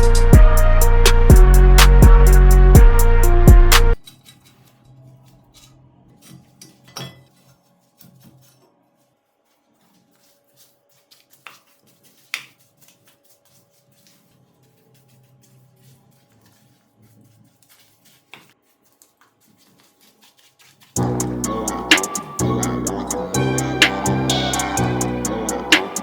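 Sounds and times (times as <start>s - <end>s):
loud music: 0.0s - 4.0s, 21.0s - 26.0s.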